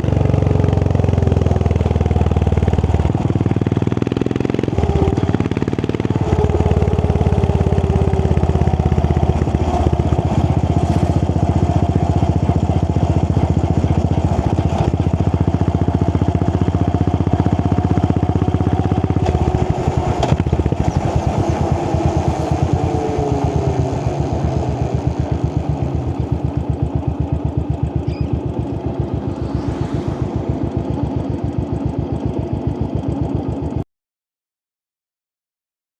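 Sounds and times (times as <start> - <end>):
motorcycle engine running: 0.0 - 33.8
exhaust crack: 0.8 - 33.1.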